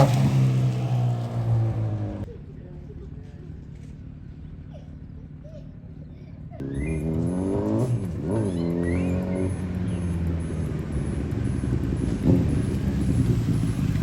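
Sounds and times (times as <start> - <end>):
motorcycle engine revving: 0.0 - 2.3, 6.6 - 14.0.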